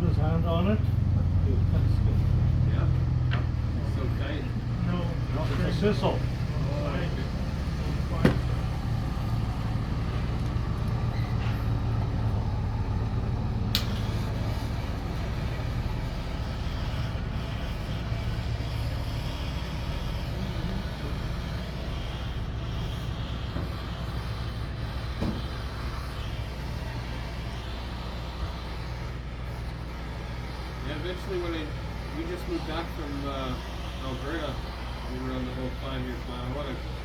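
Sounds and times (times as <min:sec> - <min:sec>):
engine running low: 0:00.0 - 0:37.0
sharp click: 0:13.7 - 0:14.0.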